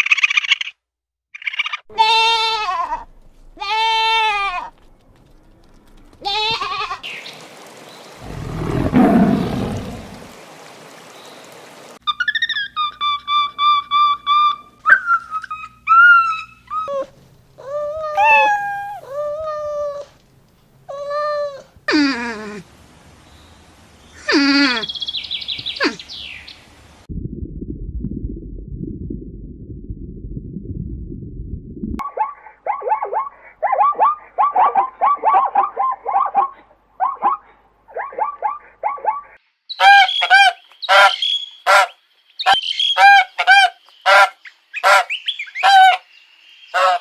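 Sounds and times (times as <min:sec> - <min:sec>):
animal calls: 0:08.2 - 0:10.4, 0:17.7 - 0:19.8.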